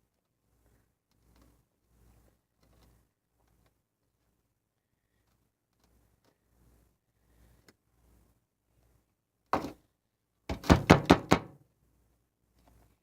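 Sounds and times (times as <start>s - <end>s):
plastic glue bottle knocking: 9.6s - 9.8s.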